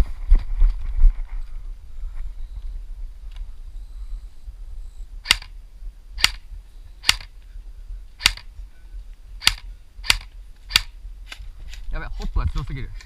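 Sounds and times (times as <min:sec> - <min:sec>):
airsoft gun shots: 0:05.2 - 0:05.5, 0:06.2 - 0:06.4, 0:07.0 - 0:07.3, 0:08.2 - 0:08.5, 0:09.4 - 0:11.0.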